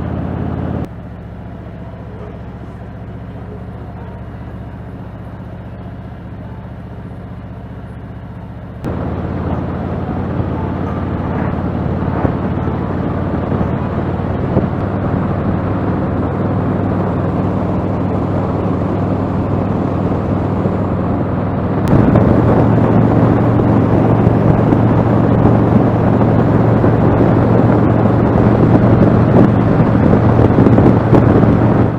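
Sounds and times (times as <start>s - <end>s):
motorcycle engine running: 0.0s - 31.9s
rushing noise: 8.8s - 31.9s.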